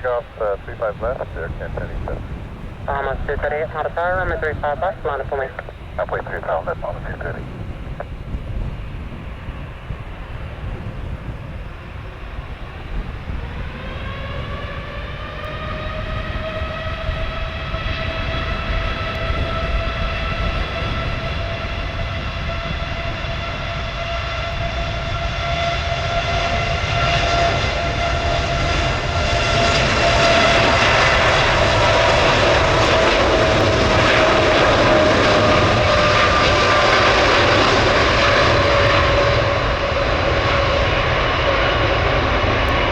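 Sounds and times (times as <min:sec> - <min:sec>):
jet engines spooling up: 0:00.0 - 0:08.1.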